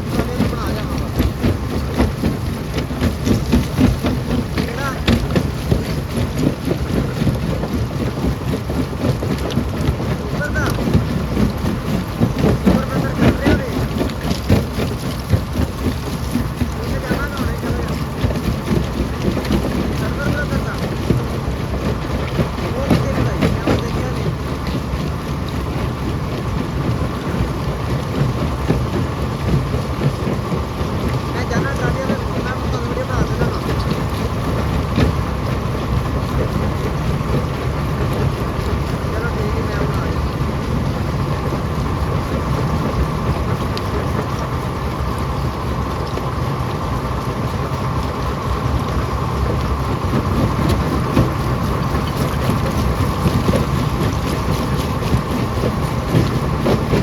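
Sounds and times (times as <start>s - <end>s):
stone crusher rumbling: 0.0s - 44.7s.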